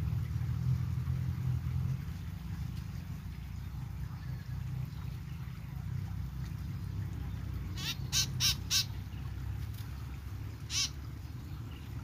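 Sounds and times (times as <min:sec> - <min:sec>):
bird giving harsh calls: 0:07.8 - 0:09.0, 0:10.7 - 0:11.0.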